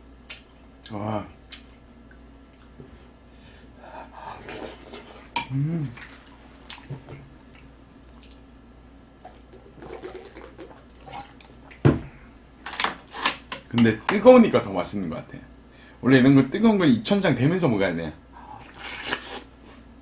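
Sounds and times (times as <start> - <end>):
chewing and wet mouth sounds: 1.5 - 2.8, 5.9 - 8.5, 18.6 - 19.5.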